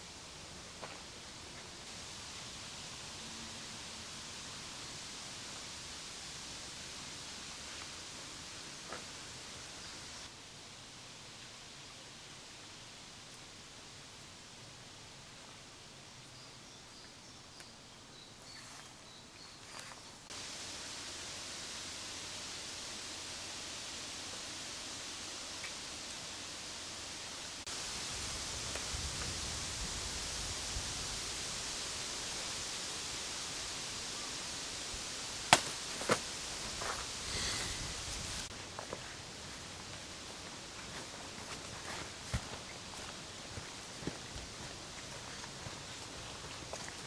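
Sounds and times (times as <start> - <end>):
steady outdoor hiss: 0.0 - 47.0.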